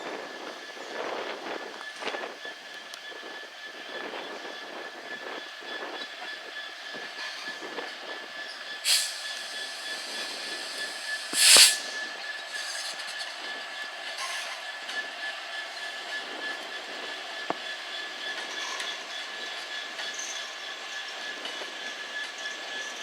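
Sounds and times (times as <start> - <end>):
train wheel squeal: 0.0 - 23.0
loud bursts of hiss: 8.8 - 13.7.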